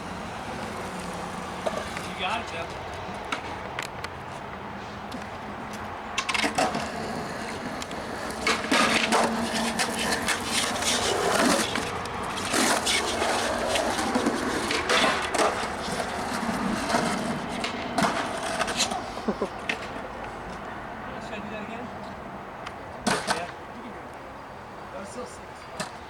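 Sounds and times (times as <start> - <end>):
skateboard clacks and impacts: 0.0 - 2.2, 6.2 - 19.0
skateboard wheels rolling and scraping: 0.0 - 21.0.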